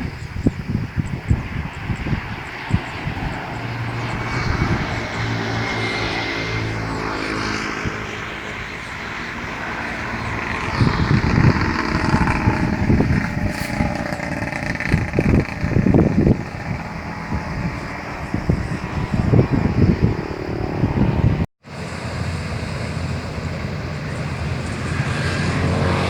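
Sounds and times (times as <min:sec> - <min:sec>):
wind buffeting microphone: 0:00.0 - 0:26.0
combine harvester engine running: 0:08.0 - 0:26.0
irregular low rumbles: 0:09.1 - 0:21.5.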